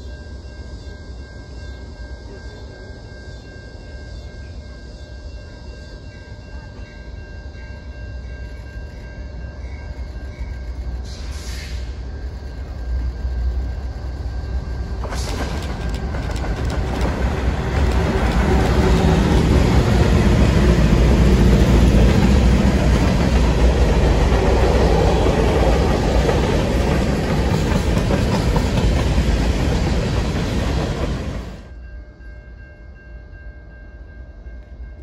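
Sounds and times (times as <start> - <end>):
train passing close by: 0.0 - 35.0
wheels clattering on rails: 14.5 - 31.7.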